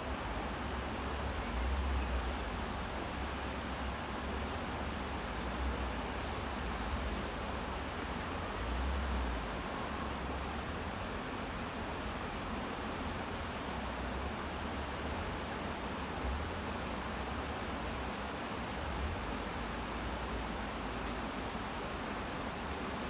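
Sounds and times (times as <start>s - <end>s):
steady rushing hiss: 0.0s - 9.9s.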